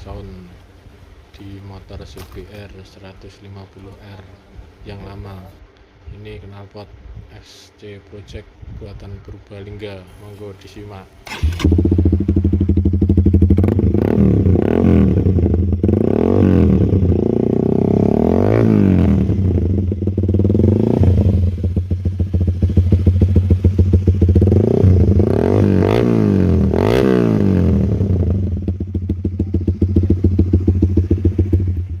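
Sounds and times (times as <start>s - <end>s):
motorcycle engine idling and revving: 11.3s - 32.0s.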